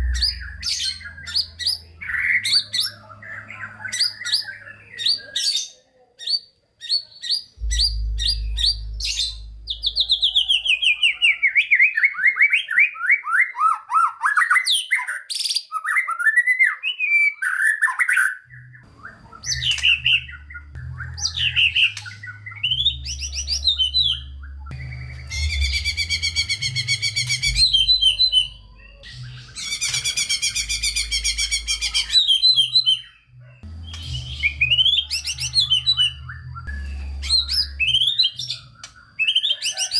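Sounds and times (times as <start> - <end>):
low hum: 0.0 - 3.8, 7.6 - 11.5, 18.6 - 39.1
songbird singing varied song: 18.6 - 39.9.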